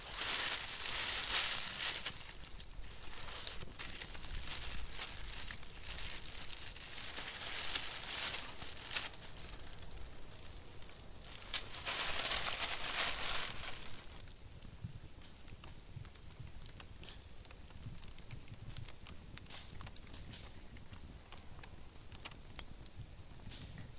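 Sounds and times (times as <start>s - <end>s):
dry material rustling and crinkling: 0.0s - 14.7s.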